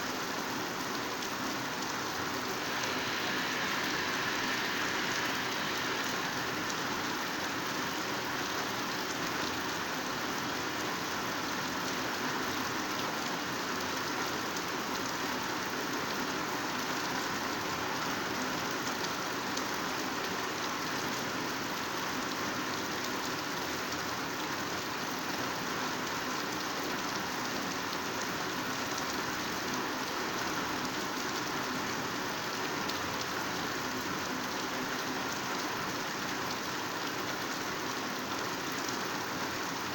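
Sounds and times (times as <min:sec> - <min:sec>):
heavy rain on foliage: 0:00.0 - 0:39.9.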